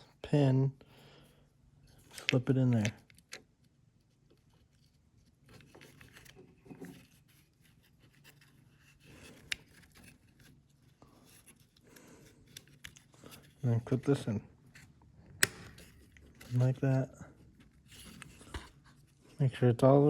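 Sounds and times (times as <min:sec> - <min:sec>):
light scrapes and rubs: 0:04.4 - 0:15.0, 0:15.7 - 0:19.4
sharp click: 0:15.4 - 0:15.8.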